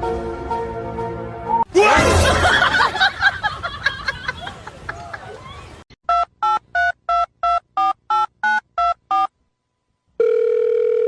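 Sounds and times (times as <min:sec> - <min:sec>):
telephone keypad beeps: 0:06.1 - 0:09.3
telephone ringing tone: 0:10.2 - 0:11.0.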